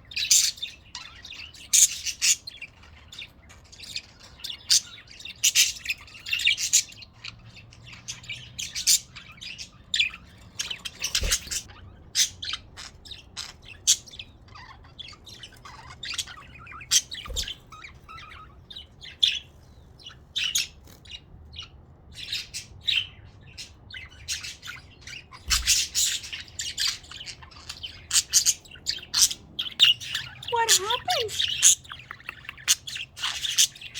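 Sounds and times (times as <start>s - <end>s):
budgerigars chirping: 0.0s - 33.9s.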